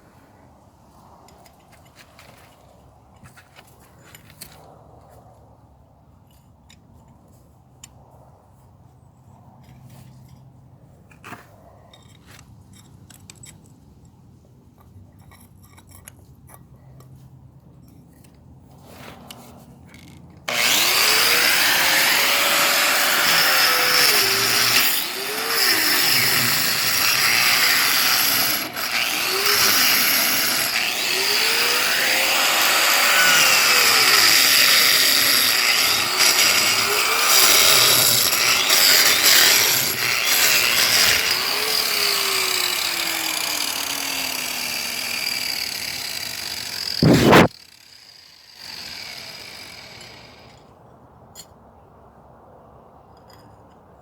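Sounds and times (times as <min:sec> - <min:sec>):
power tool cutting concrete: 0:20.5 - 0:50.5.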